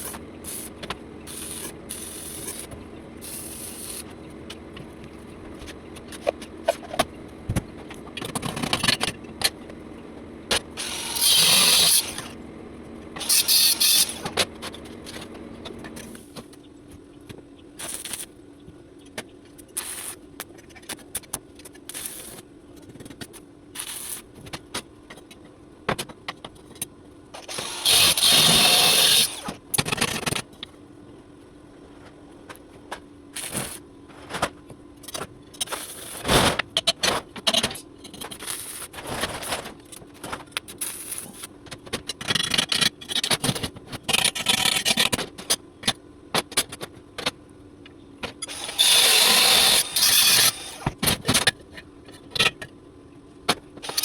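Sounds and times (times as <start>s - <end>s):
welding arc crackling hiss: 0.0s - 0.7s, 1.3s - 4.0s, 17.8s - 18.3s, 19.8s - 20.2s, 21.9s - 22.4s, 23.8s - 24.3s, 40.8s - 41.5s.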